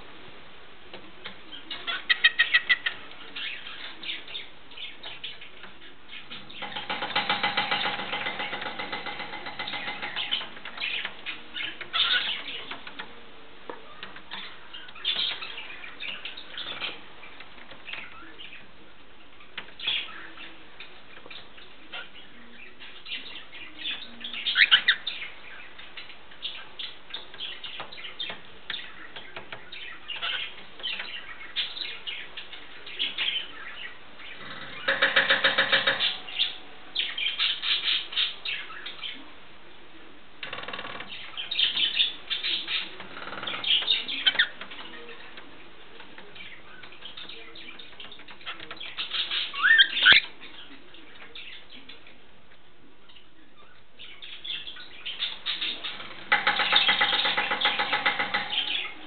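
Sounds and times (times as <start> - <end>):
rapid buzzy bird chatter: 0.0 - 59.0
bird chirps: 19.4 - 39.2, 46.2 - 52.0.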